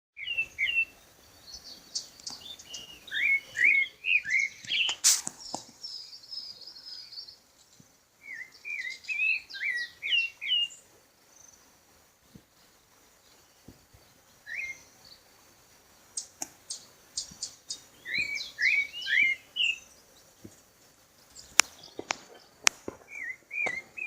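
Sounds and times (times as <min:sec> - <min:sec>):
birds whistling chirps: 0:00.2 - 0:10.8, 0:12.6 - 0:15.3, 0:16.1 - 0:20.6, 0:21.2 - 0:24.0.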